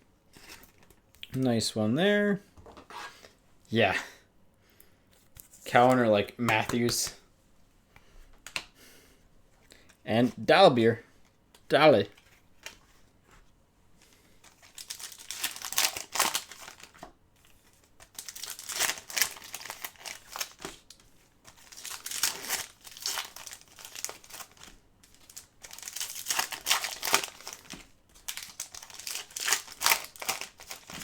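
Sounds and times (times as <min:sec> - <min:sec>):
wrappers torn and crumpled: 0:14.5 - 0:17.0, 0:17.8 - 0:31.0.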